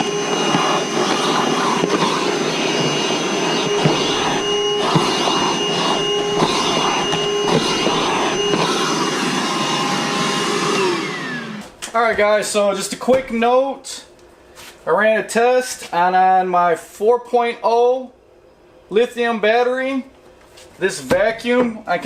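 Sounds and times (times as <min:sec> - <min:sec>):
vacuum motor whine: 0:00.0 - 0:11.8.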